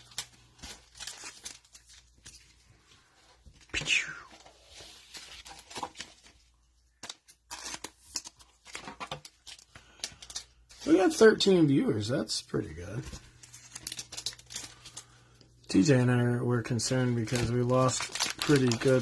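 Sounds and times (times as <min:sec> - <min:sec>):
cellophane wrappers crinkling and tearing: 0:00.0 - 0:02.8, 0:04.7 - 0:11.5, 0:13.0 - 0:15.9, 0:16.7 - 0:19.0.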